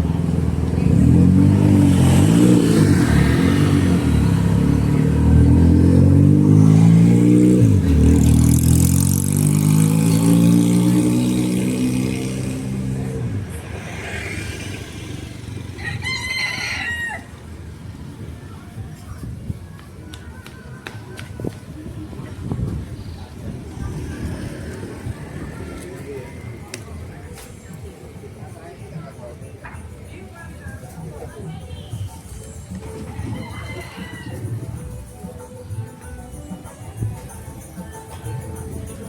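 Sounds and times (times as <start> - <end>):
vehicle engine revving: 0.0 - 15.8.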